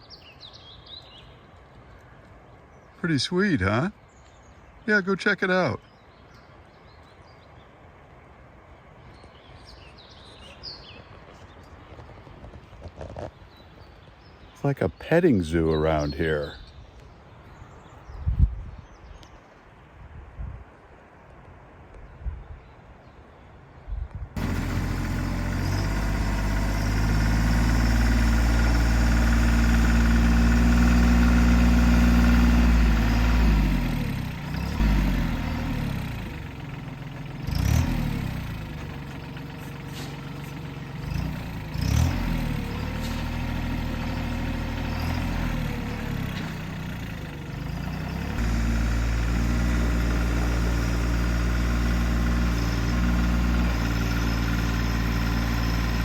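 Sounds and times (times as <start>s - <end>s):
engine running: 24.4s - 56.0s.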